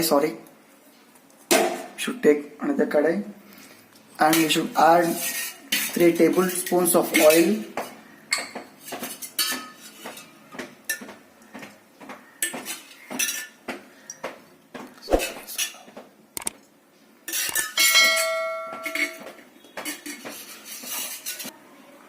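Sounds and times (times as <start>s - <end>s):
metal cookware clattering: 4.2s - 7.6s, 8.3s - 11.2s, 12.4s - 13.6s, 17.3s - 21.5s
metal pan struck and ringing: 17.8s - 19.2s.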